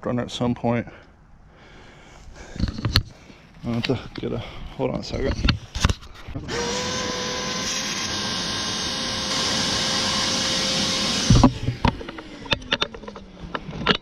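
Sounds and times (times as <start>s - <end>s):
shop vacuum running: 6.5s - 12.7s.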